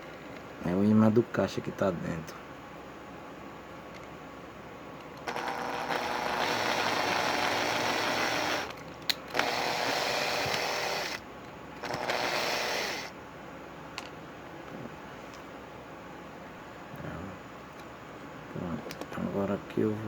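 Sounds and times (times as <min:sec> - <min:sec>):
cordless screwdriver motor running: 0:05.2 - 0:11.2, 0:11.8 - 0:13.1.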